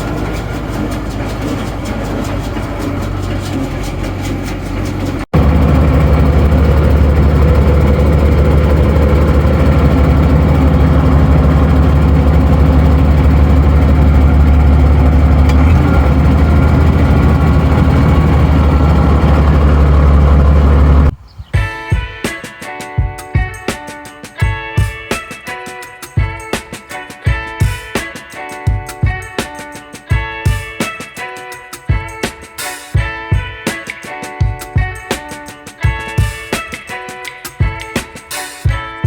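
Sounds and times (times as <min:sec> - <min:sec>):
tractor engine running: 0:00.0 - 0:21.2.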